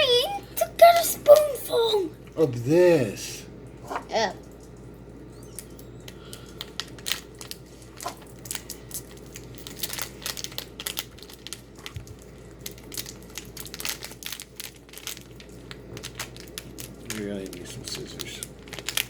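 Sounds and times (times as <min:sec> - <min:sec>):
plastic packet crinkling: 0:05.6 - 0:19.0.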